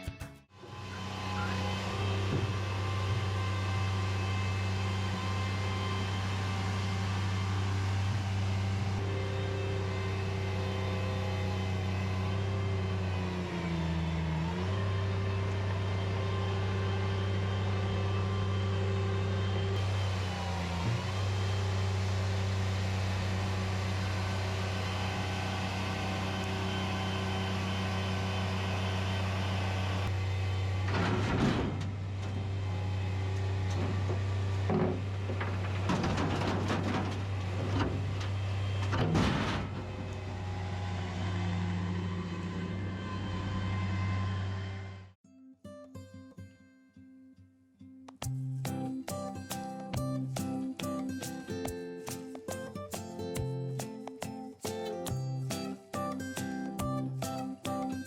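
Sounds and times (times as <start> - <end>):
loader diesel engine running: 0.5 - 45.2.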